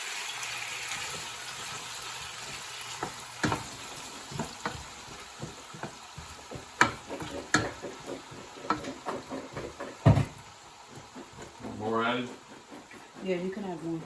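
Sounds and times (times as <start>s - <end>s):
faint sizzle: 0.0s - 14.0s
utensil scraping frying pan: 0.6s - 14.0s
loud knock: 9.6s - 10.4s.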